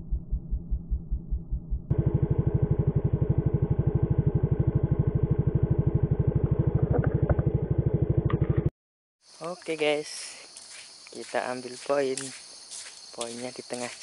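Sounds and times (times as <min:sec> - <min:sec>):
small engine running: 0:01.9 - 0:08.7.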